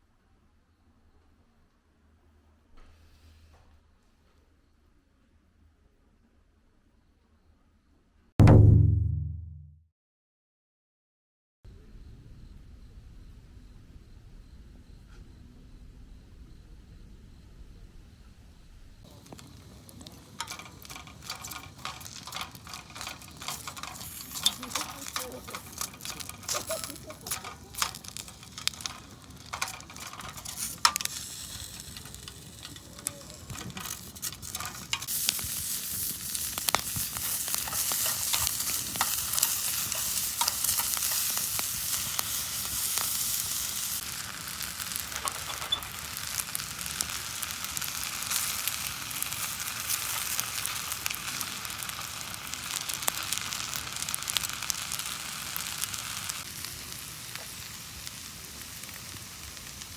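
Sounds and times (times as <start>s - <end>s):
fire pit crackling: 19.0s - 59.9s
high sizzle: 19.0s - 59.9s.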